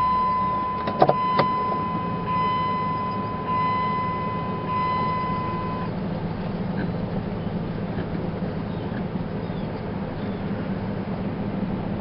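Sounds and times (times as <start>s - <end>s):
high electronic beep tone: 0.0s - 5.9s
vehicle engine running: 0.0s - 12.0s.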